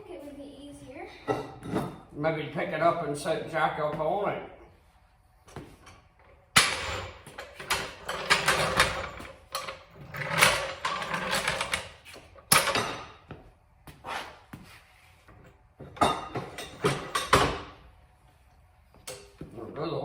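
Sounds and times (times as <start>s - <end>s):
metal clanks and scraping: 5.8s - 13.2s, 15.9s - 17.8s.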